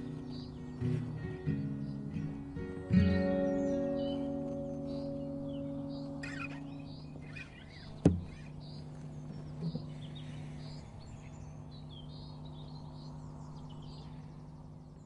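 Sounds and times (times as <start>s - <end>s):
guitar strings ringing: 0.0s - 10.0s
birds chirping: 0.0s - 15.0s
sharp knock: 8.0s - 8.5s.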